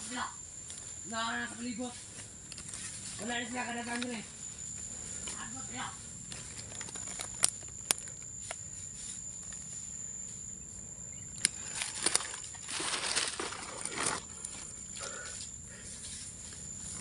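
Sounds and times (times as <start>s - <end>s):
high-pitched insect drone: 0.0s - 17.0s
rustling in dry leaves: 11.6s - 14.6s.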